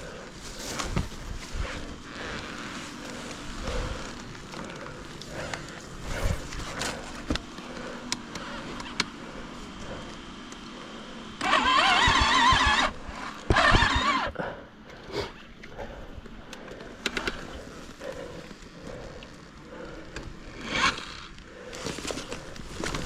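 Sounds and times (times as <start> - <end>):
motorcycle electric starter cranking: 11.4 - 14.3.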